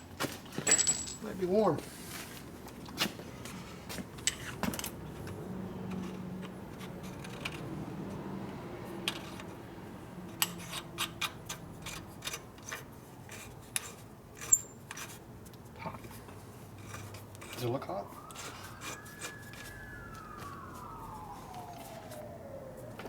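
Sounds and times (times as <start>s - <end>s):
small metal parts clinking: 0.6s - 1.4s, 13.8s - 15.1s.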